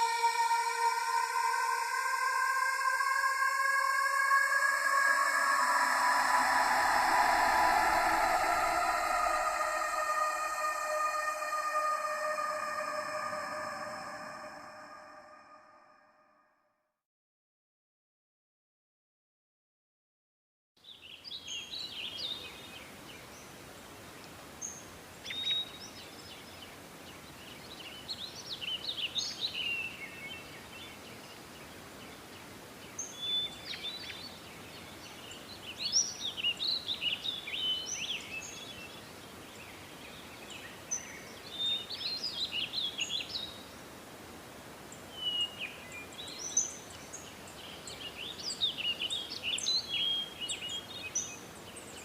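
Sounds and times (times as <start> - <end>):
faint steady hiss: 20.8 - 52.0.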